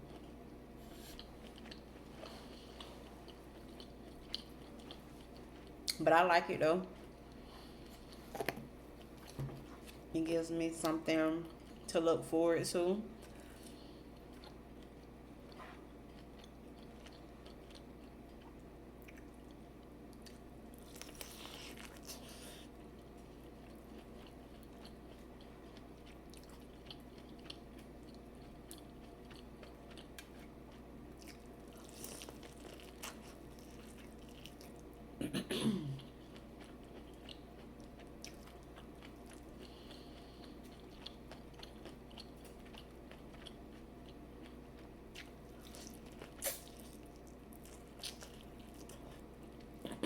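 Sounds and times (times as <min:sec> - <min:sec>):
person chewing and biting: 0:01.0 - 0:06.0, 0:23.4 - 0:34.9, 0:36.0 - 0:49.8.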